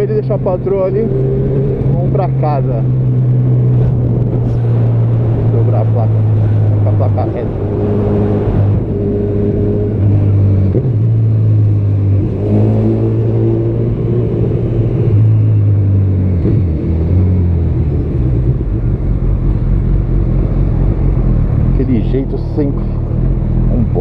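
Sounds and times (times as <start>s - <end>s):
motorcycle engine running: 15.2s - 24.0s.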